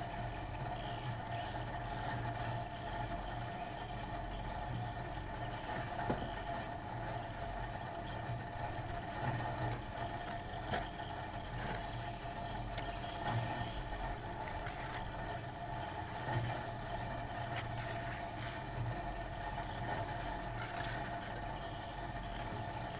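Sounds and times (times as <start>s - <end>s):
steady mechanical hum: 0.0s - 22.9s.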